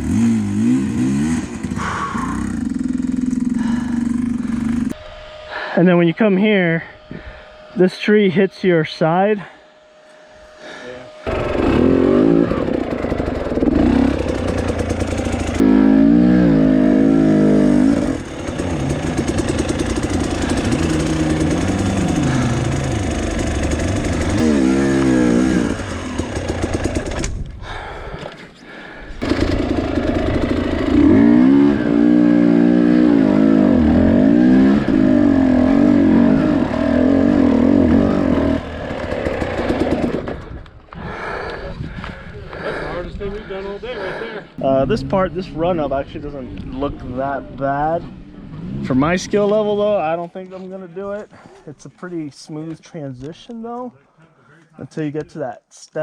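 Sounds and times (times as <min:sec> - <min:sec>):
dirt bike engine revving: 0:00.0 - 0:05.0, 0:11.1 - 0:27.4, 0:29.2 - 0:40.6.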